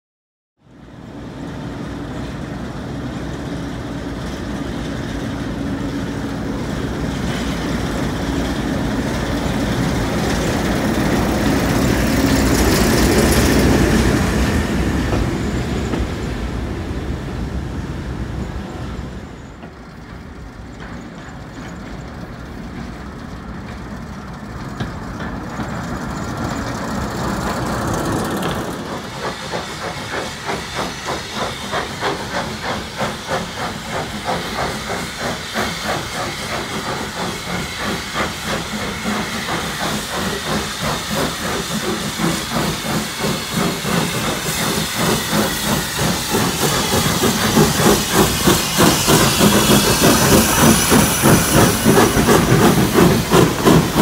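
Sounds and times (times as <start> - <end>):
train rumbling on rails: 0.6 - 54.0
locomotive rhythmic pulsing: 19.4 - 54.0.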